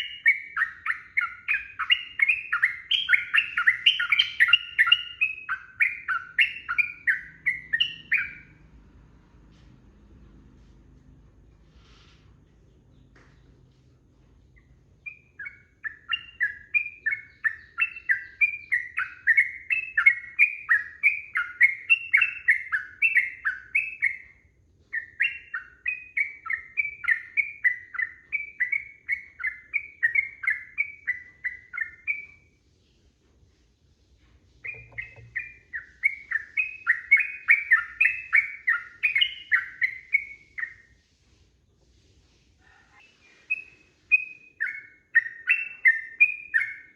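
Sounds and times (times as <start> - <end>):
bird singing fast notes: 0.0 - 8.6, 34.6 - 40.9.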